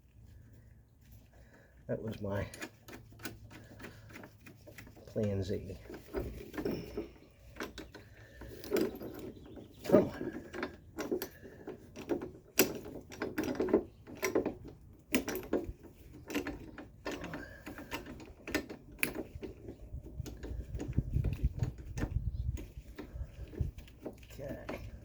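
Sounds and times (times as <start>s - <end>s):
spring compressor clamps clanking: 2.4s - 25.0s.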